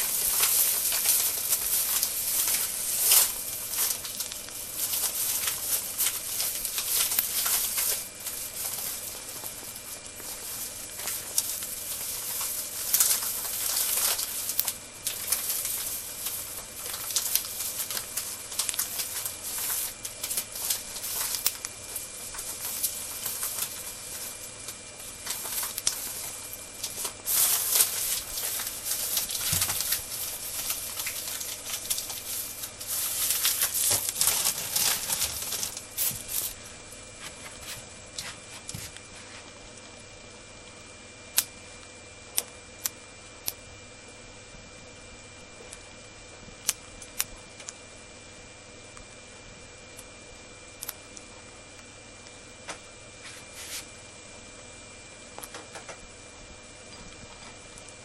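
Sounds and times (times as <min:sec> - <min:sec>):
bird crunching dry noodles: 0:00.0 - 0:36.6.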